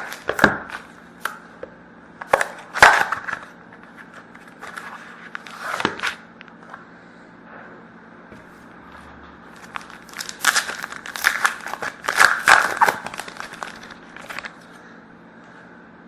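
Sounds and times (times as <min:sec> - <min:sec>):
wrapper crinkling and tearing: 0:09.5 - 0:14.6.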